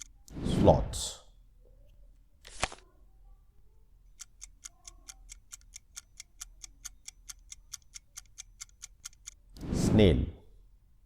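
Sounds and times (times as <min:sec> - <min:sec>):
clock ticking quickly: 0:04.2 - 0:09.5.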